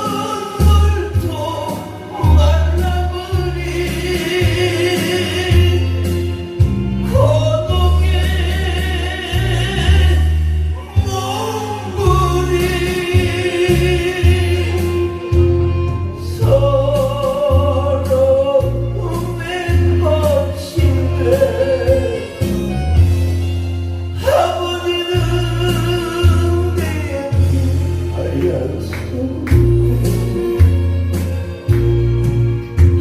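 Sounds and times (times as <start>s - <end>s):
instrumental accompaniment: 0.0s - 33.0s
person singing slow song: 0.0s - 33.0s
sustained bass notes: 0.0s - 33.0s.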